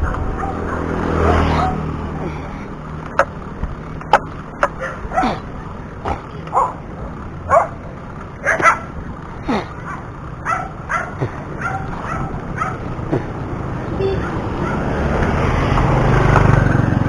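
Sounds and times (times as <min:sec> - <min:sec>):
puppy yelping: 0:00.0 - 0:01.8, 0:04.6 - 0:05.4, 0:06.1 - 0:06.8, 0:09.8 - 0:12.9, 0:14.0 - 0:14.9.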